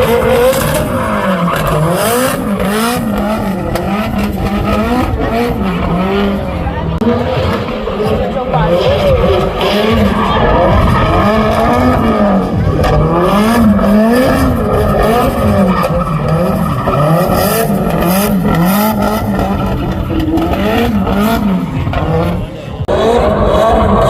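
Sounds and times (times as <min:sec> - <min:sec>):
tyre squeal and skid: 0:00.0 - 0:03.2, 0:07.2 - 0:22.2
car engine revving: 0:00.0 - 0:24.0.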